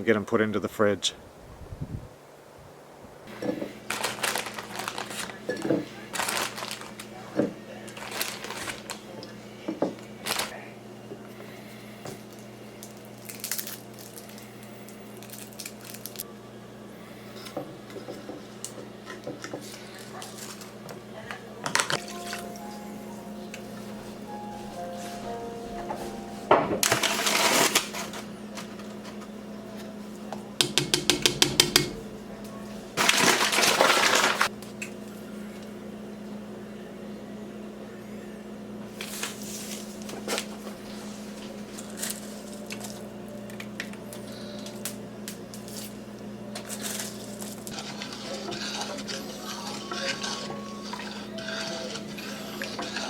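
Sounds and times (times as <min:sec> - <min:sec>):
steady low hum: 0:34.5 - 0:53.0.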